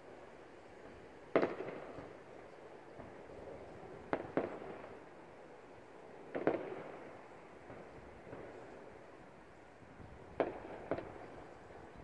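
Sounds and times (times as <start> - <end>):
fireworks bursting with bangs: 1.3 - 2.2, 10.3 - 11.5.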